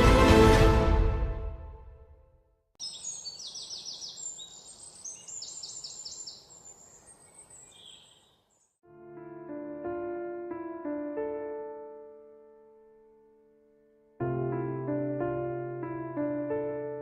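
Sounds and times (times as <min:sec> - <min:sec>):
background music: 0:00.0 - 0:02.3
quick high bird chirps: 0:02.8 - 0:08.7.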